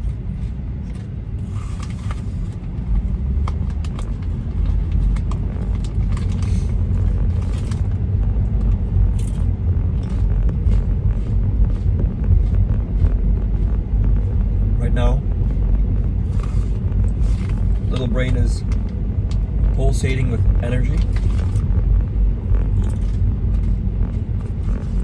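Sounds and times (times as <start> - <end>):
car tyres and engine rumble: 0.0 - 25.0.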